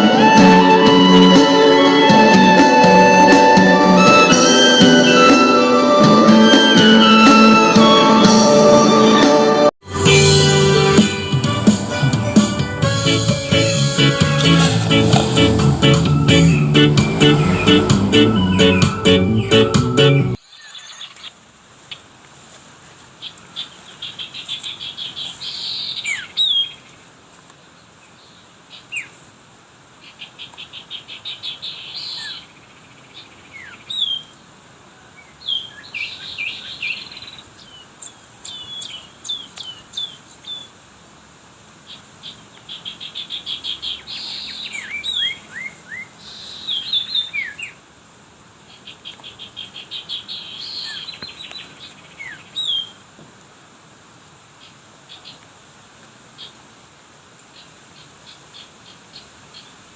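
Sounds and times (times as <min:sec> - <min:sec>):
songbird buzzy trill: 0:10.1 - 0:20.4
sharp down-slurred whistles: 0:14.5 - 0:20.2.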